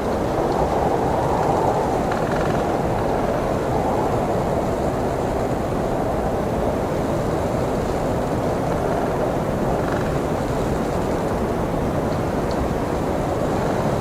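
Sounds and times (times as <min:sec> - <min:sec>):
blizzard wind rushing: 0:00.0 - 0:14.0.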